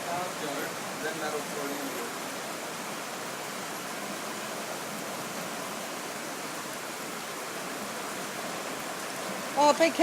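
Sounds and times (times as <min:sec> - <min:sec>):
floodwater rushing through street: 0:00.0 - 0:10.0.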